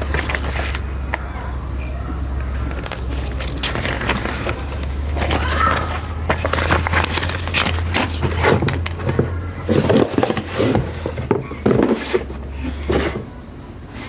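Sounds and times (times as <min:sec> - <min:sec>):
insect trill: 0:00.0 - 0:14.0
steady low hum: 0:00.0 - 0:14.0
knocks and clatter of handling: 0:02.4 - 0:13.4.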